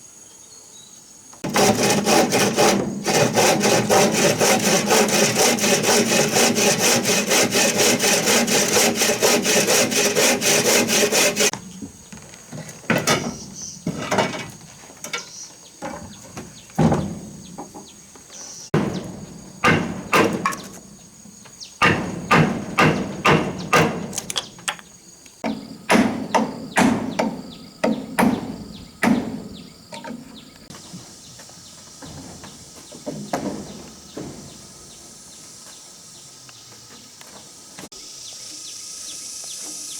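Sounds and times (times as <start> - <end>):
saw cutting wood: 1.4 - 11.6, 18.8 - 20.9, 21.8 - 24.4
knocks on wood: 18.8 - 20.8, 21.8 - 24.3, 25.4 - 29.6, 32.9 - 34.6.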